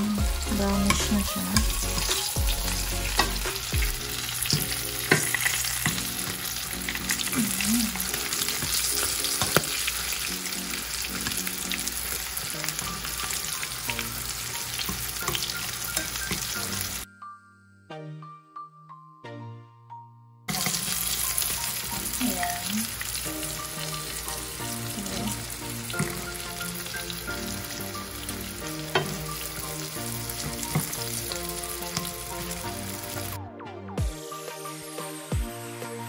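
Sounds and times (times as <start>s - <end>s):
fish sizzling in hot oil: 0.0s - 17.1s, 20.5s - 33.4s.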